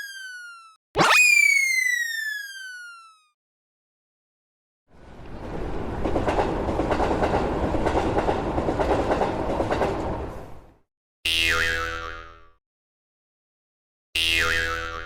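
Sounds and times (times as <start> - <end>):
falling-pitch sound effect: 0.0 - 3.2
train rail clatter: 5.0 - 10.8.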